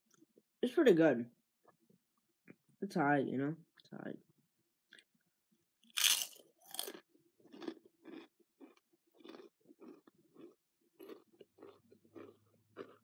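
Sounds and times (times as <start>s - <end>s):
person crunching potato chips: 5.8s - 13.0s.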